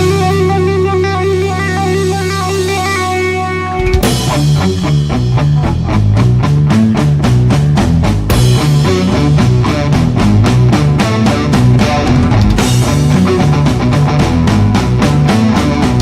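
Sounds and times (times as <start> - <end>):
electric guitar: 0.0 - 16.0
rock band playing: 0.0 - 16.0.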